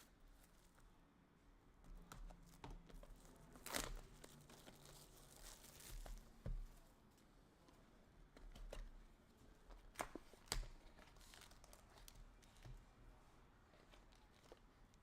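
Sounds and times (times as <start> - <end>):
wrappers crinkling and tearing: 3.1 - 6.4, 10.0 - 12.6.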